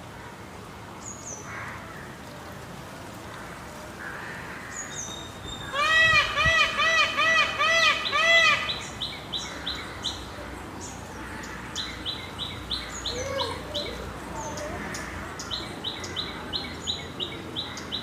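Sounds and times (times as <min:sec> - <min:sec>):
birds warbling: 0:04.2 - 0:18.0.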